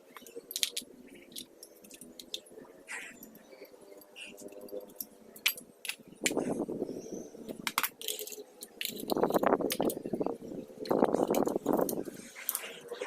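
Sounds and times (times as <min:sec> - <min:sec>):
metal tools clinking: 0:00.2 - 0:06.1, 0:07.7 - 0:10.0.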